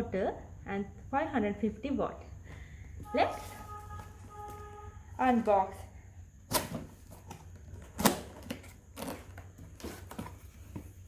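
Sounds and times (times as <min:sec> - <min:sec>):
cardboard packaging clicks and rustles: 0:06.5 - 0:11.0.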